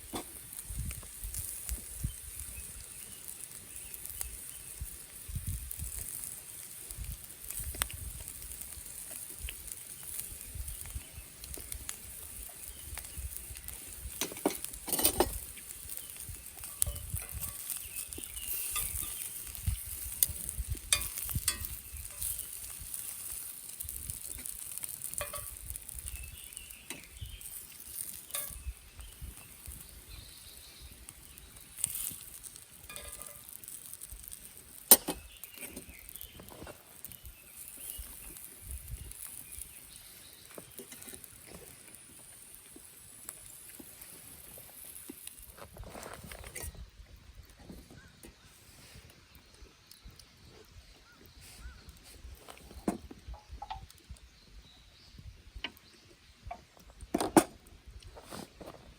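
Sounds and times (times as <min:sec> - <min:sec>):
meat sizzling in a grill pan: 0:00.0 - 0:45.8
sharp clicks and pops: 0:06.9 - 0:29.9, 0:31.0 - 0:39.9.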